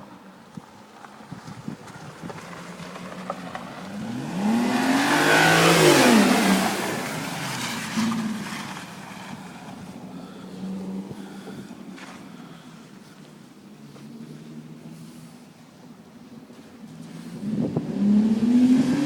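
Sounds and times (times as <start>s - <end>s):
car accelerating past: 2.0s - 9.8s, 16.9s - 19.0s.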